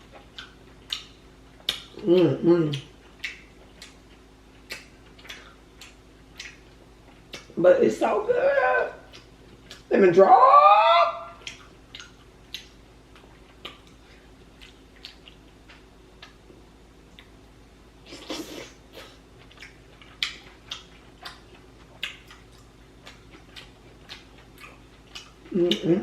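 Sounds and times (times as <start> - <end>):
chewing seafood: 0.0 - 7.6, 9.0 - 9.9, 11.3 - 16.5, 18.2 - 26.0
wet mouth clicks and smacks: 0.3 - 2.0, 2.7 - 4.0, 4.6 - 6.6, 7.3 - 7.5, 9.1 - 9.9, 11.4 - 14.0, 19.5 - 21.4, 22.0 - 25.8.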